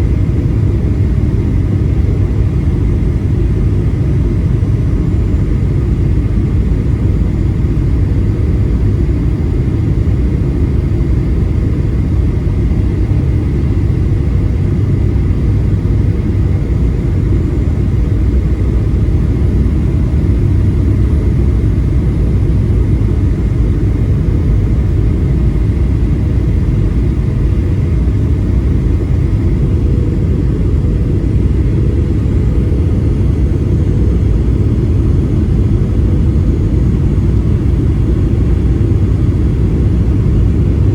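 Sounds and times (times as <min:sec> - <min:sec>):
airplane cabin engine rumble: 0:00.0 - 0:40.9
faint steady whine: 0:00.0 - 0:40.9.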